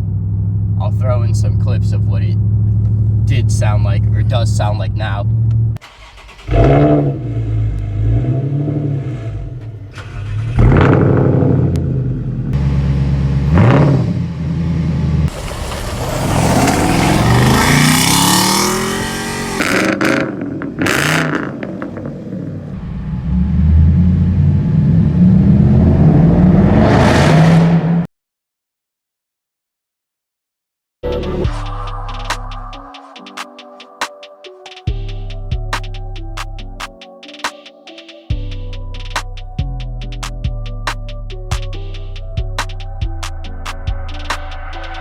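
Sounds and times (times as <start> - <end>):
car engine revving: 0.0 - 28.0, 31.0 - 33.2.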